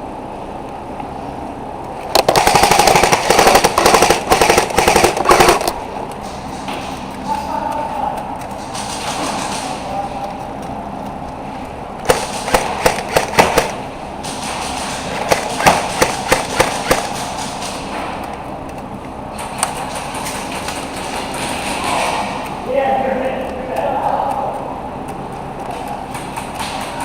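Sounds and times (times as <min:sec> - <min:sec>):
airsoft gun shots: 0:02.1 - 0:05.8, 0:12.0 - 0:17.9.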